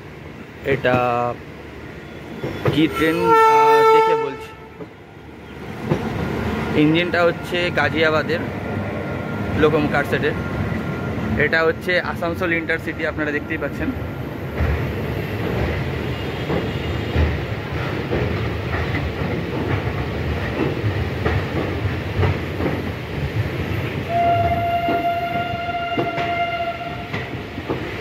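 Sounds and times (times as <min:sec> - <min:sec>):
train rumbling on track: 0:00.0 - 0:28.0
train horn: 0:02.9 - 0:04.8, 0:24.1 - 0:27.2
wheels clacking over rail joints: 0:14.5 - 0:28.0.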